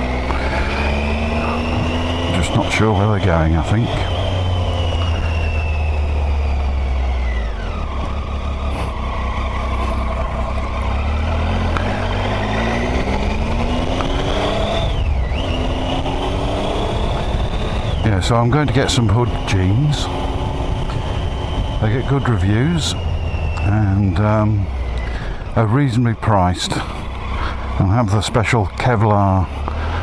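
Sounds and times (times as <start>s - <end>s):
low wind rumble: 0.0s - 30.0s
motorcycle engine: 0.0s - 30.0s.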